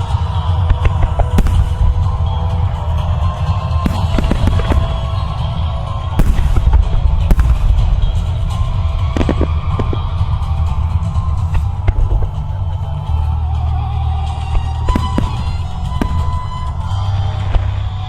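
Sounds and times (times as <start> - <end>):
firework shells bursting: 3.8 - 5.4, 6.1 - 10.2.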